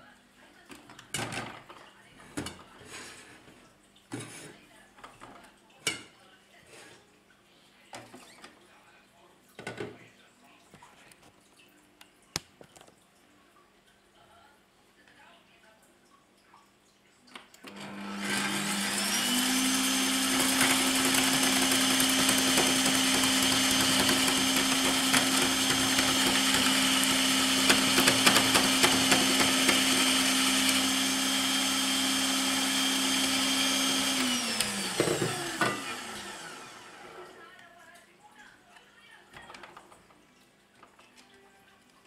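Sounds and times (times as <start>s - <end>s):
meat mincer motor whine: 17.7s - 37.4s.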